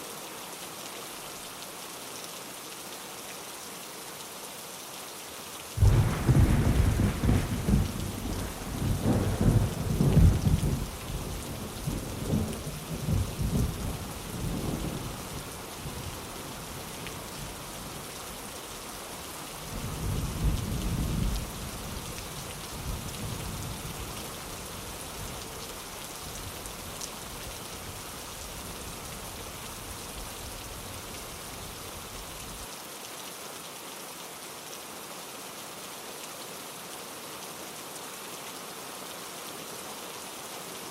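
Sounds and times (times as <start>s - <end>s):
steady rain: 0.0s - 40.9s
thunder clap and rumble: 5.8s - 15.1s.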